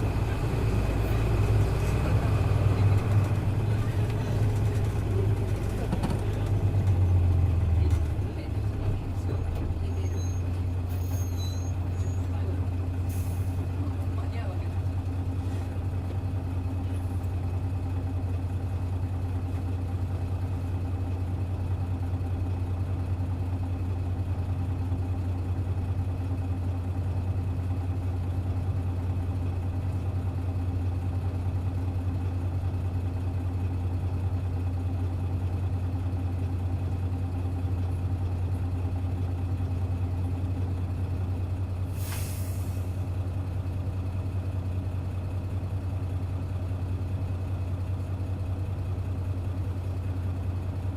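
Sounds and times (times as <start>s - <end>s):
bus diesel engine running: 0.0s - 50.9s
brief hiss: 41.9s - 43.0s.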